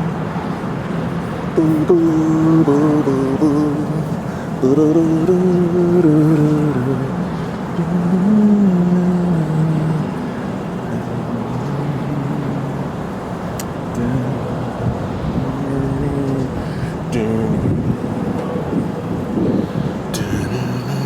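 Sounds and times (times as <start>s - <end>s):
rushing outdoor noise: 0.0s - 21.0s
man humming: 1.6s - 12.9s, 13.9s - 18.1s, 20.1s - 21.0s.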